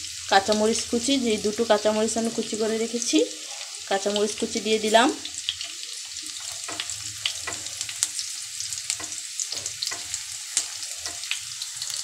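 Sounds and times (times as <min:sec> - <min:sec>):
vegetables sizzling in hot oil: 0:00.0 - 0:12.0
spatula scraping a pan: 0:06.3 - 0:12.0.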